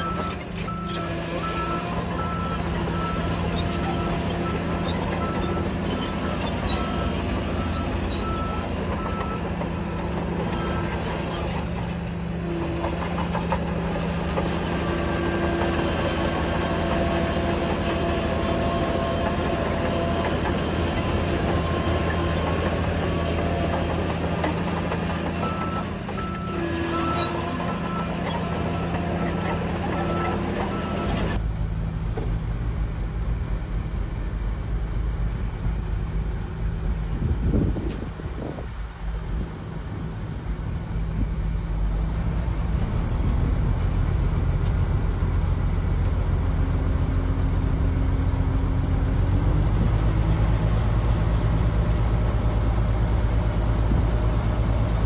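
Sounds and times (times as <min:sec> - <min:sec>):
reversing alarm beeps: 0:00.0 - 0:09.9, 0:25.4 - 0:28.2, 0:28.8 - 0:31.2
heavy diesel machinery running: 0:00.0 - 0:55.0.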